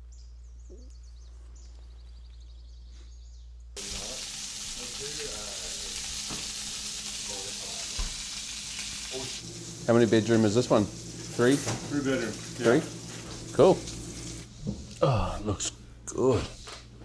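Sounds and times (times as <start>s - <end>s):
faint bird chirps: 0.0s - 3.8s
food sizzling in a frying pan: 3.8s - 14.5s.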